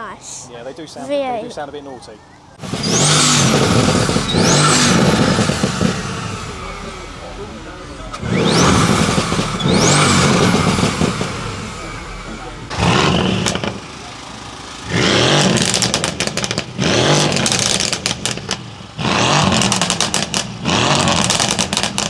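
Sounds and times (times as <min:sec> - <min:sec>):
car engine revving: 0:02.6 - 0:22.0
exhaust pops and crackles: 0:02.6 - 0:22.0.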